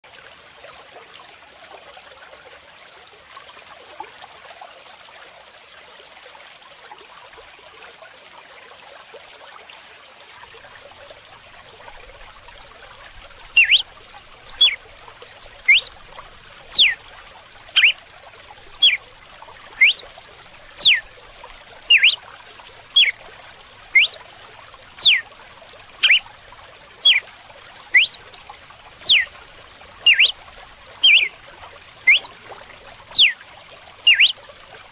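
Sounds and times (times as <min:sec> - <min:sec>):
water trickling: 0:00.0 - 0:34.9
bird whistling sharp notes: 0:13.5 - 0:13.9, 0:14.5 - 0:14.8, 0:15.7 - 0:16.0, 0:16.7 - 0:17.0, 0:17.8 - 0:18.0, 0:18.8 - 0:19.0, 0:19.8 - 0:20.1, 0:20.8 - 0:21.1, 0:21.9 - 0:22.2, 0:22.9 - 0:23.2, 0:24.0 - 0:24.2, 0:25.0 - 0:25.3, 0:26.0 - 0:26.3, 0:27.0 - 0:27.2, 0:27.9 - 0:28.2, 0:29.0 - 0:29.3, 0:30.1 - 0:30.4, 0:31.0 - 0:31.3, 0:32.1 - 0:32.3, 0:33.1 - 0:33.4, 0:34.1 - 0:34.4.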